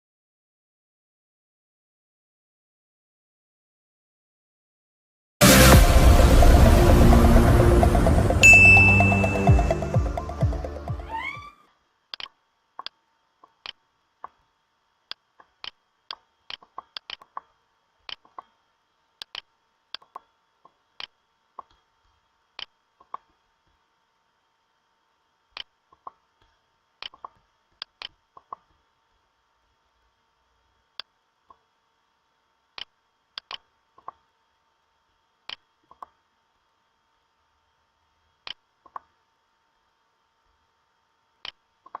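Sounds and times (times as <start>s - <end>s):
faint electrical hum: 11.1s - 42.0s.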